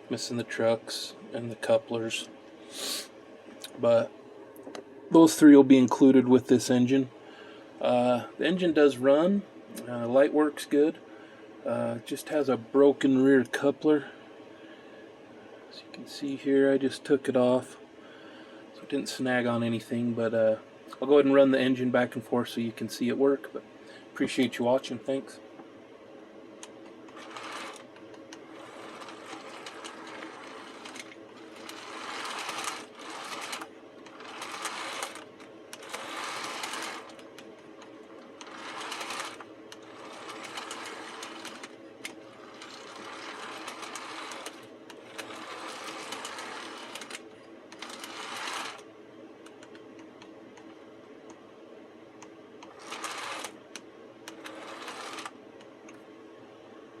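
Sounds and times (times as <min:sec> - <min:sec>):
model train motor humming: 0:27.1 - 0:27.8, 0:28.6 - 0:37.2, 0:38.4 - 0:47.2, 0:47.8 - 0:48.8, 0:52.7 - 0:53.5, 0:54.3 - 0:55.3.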